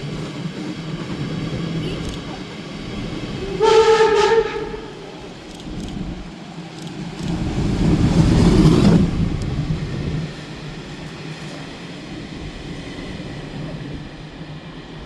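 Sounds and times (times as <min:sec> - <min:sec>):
train rumbling: 0:00.0 - 0:15.0
train horn blast: 0:03.4 - 0:05.2.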